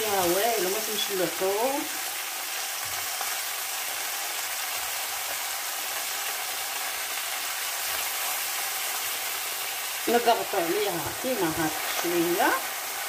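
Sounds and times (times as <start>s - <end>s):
aubergine sizzling in a pan: 0.0s - 13.0s.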